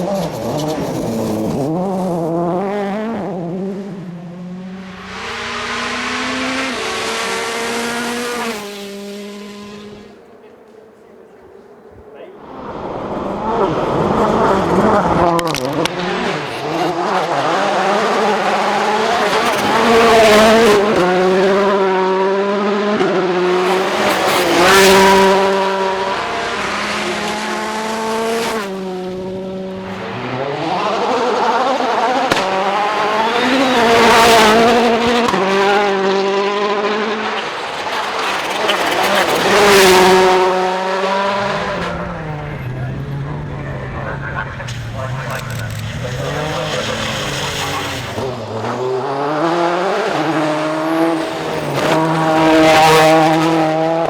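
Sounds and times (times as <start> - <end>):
rally cars passing flat out: 0.0 - 54.0.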